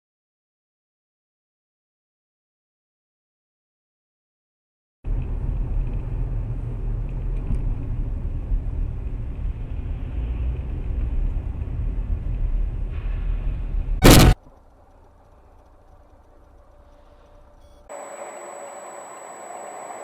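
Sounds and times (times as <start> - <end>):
loud short bang: 14.0 - 14.4.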